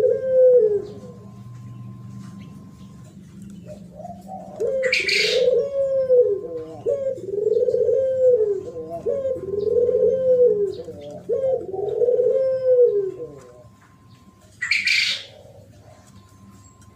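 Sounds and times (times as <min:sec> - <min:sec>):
dove cooing: 0:00.0 - 0:16.9.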